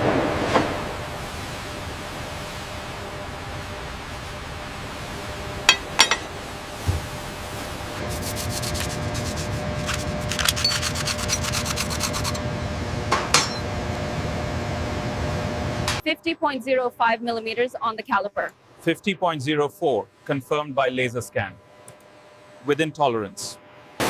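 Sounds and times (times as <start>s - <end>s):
machinery hum: 0.0s - 24.0s
rasping metal rattle: 9.2s - 12.4s.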